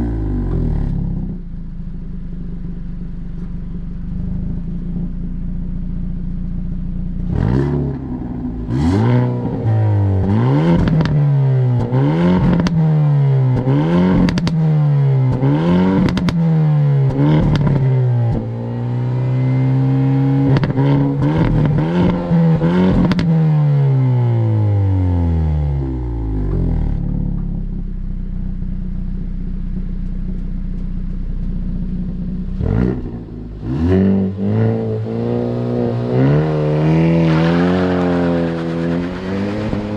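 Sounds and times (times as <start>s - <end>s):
car engine revving: 0.0s - 39.9s
exhaust cracks: 13.5s - 14.7s, 20.5s - 23.4s, 26.2s - 39.9s.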